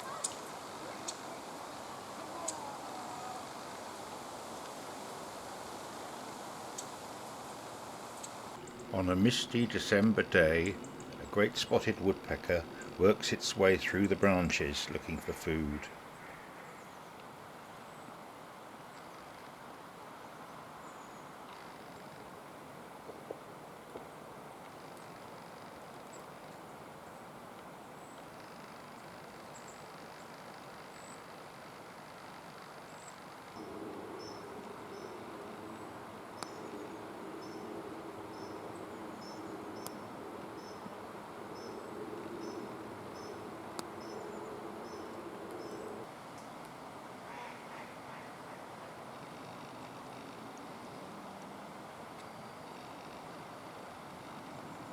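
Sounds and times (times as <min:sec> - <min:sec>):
outdoor background noise: 0:00.0 - 0:54.9
steady low hum: 0:07.5 - 0:16.1.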